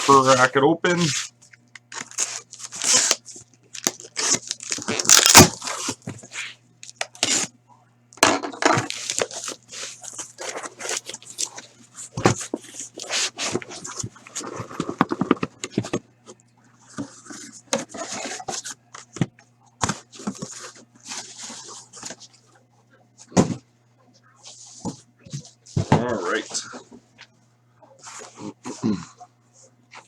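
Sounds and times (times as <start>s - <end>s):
cardboard scraping and rustling: 0.0s - 1.3s, 1.9s - 3.2s, 3.8s - 6.5s, 8.7s - 16.0s
tape and cardboard ripping: 1.9s - 6.0s, 7.1s - 7.5s, 8.8s - 11.6s.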